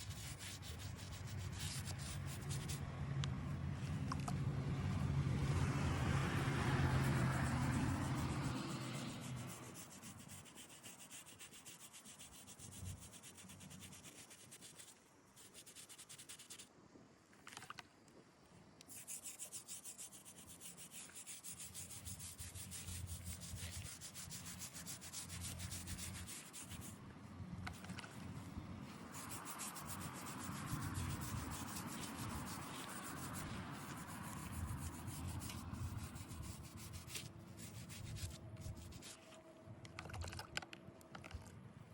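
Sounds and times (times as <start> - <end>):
rubbing strokes on stone: 0.0 - 2.8, 6.3 - 16.7, 18.8 - 27.0, 28.8 - 39.3.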